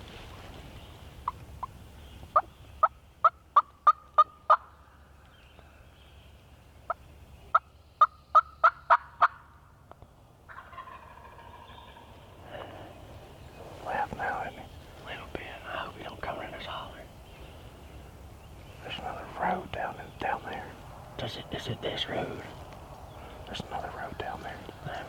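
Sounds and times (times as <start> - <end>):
turkey yelping: 8.0 - 9.5, 10.5 - 12.4.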